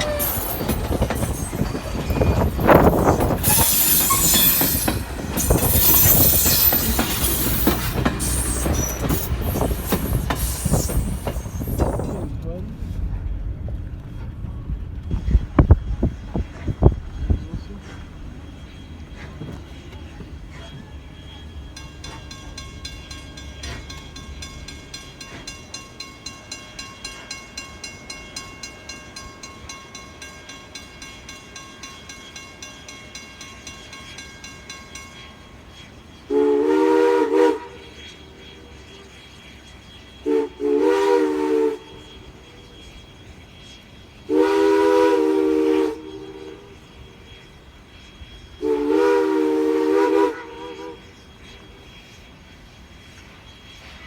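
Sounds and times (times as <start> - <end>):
locomotive bell ringing: 0.0 - 12.3, 18.4 - 36.2
steam whistle blasts: 2.4 - 12.0, 36.3 - 38.0, 40.2 - 42.8, 44.3 - 47.2, 48.6 - 51.2.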